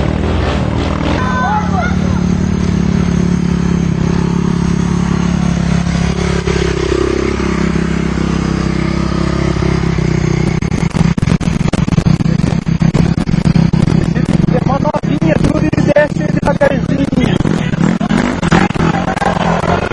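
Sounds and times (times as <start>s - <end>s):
motorcycle engines running: 0.0s - 19.9s
rapid crackling clicks: 10.3s - 19.9s.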